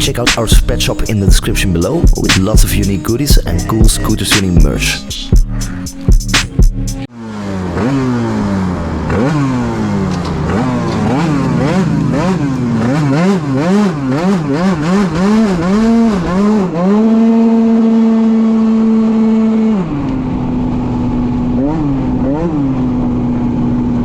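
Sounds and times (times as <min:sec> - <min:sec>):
two-stroke scooter engine revving: 0:07.0 - 0:24.0.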